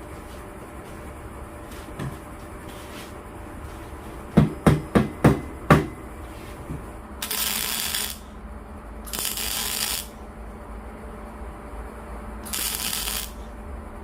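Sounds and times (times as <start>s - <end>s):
hammer knocks: 4.4s - 6.0s
hissing rattling bursts: 7.2s - 8.2s, 9.1s - 10.2s, 12.4s - 13.4s.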